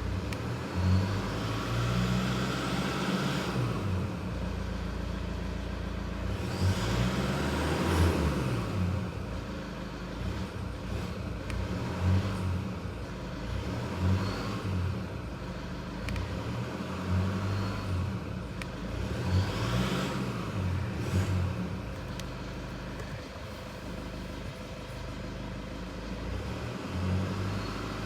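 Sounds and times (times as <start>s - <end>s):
diesel engine idling and revving: 0.0s - 28.0s.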